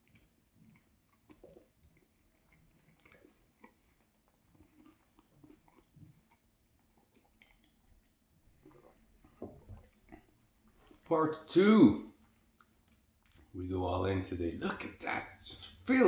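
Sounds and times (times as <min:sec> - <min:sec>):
person chewing sandwich: 0:00.0 - 0:11.1, 0:12.0 - 0:13.6.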